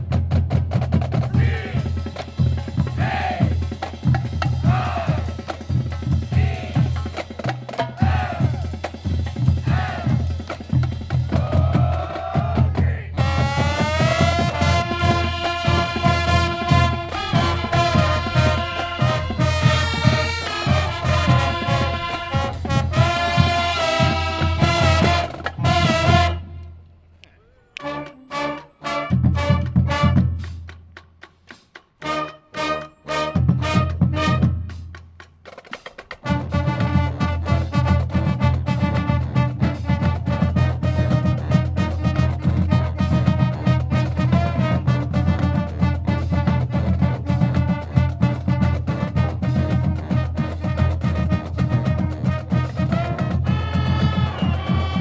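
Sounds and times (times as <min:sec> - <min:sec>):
punchy brass hits: 0:02.9 - 0:03.6, 0:04.6 - 0:05.4, 0:11.3 - 0:26.6, 0:27.8 - 0:30.6, 0:32.0 - 0:34.8, 0:36.2 - 0:55.0
brass section chord: 0:13.2 - 0:26.5.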